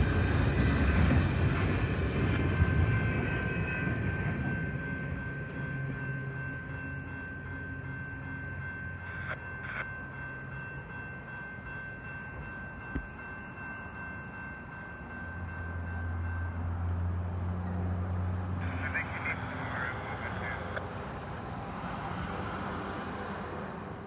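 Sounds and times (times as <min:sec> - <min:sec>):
train wheels rumbling on rail: 0:00.0 - 0:07.9
diesel locomotive drone: 0:00.0 - 0:24.0.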